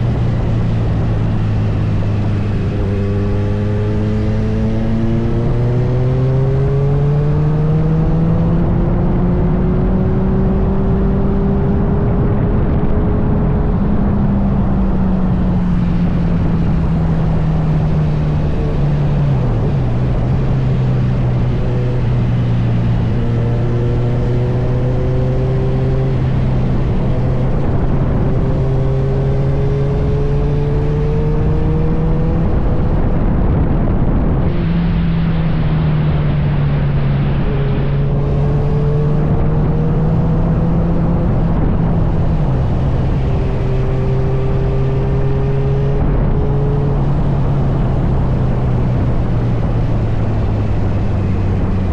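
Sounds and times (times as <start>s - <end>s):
wind rushing on microphone: 0.0s - 51.9s.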